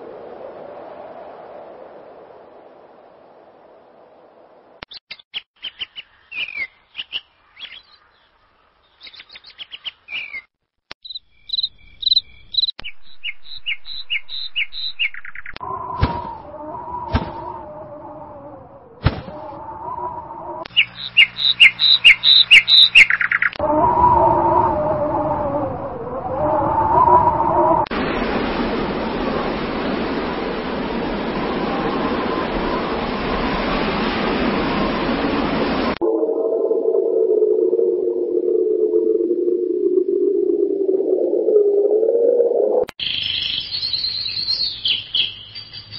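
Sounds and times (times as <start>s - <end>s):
small birds chirping: 4.9s - 15.6s, 20.6s - 23.6s, 43.0s - 45.9s
low droning tone: 36.0s - 42.9s.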